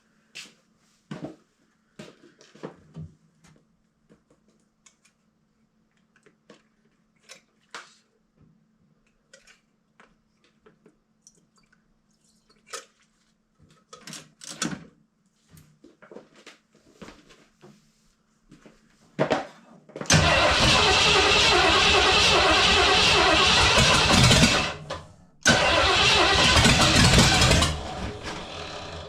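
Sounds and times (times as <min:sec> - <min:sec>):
engine cranking on starter: 0:20.1 - 0:29.0.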